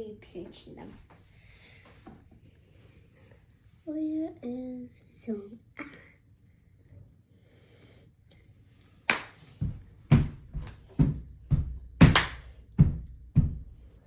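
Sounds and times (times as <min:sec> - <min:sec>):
sharp knocks on hard surface: 0:09.6 - 0:13.7.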